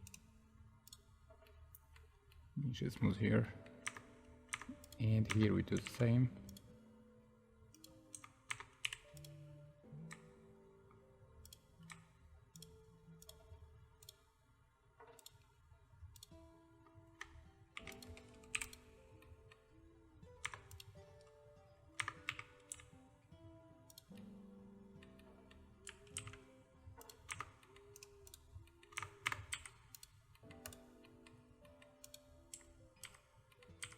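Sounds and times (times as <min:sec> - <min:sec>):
faint soft background music: 0:00.0 - 0:33.9
computer keyboard clicks: 0:03.7 - 0:06.7, 0:07.7 - 0:09.4, 0:11.4 - 0:14.2, 0:17.2 - 0:19.7, 0:20.3 - 0:22.9, 0:25.0 - 0:33.9.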